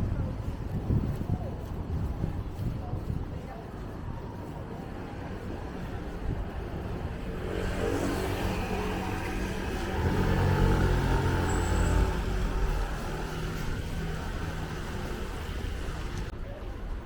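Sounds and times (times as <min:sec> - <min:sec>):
vehicle driving past: 0:07.1 - 0:16.3.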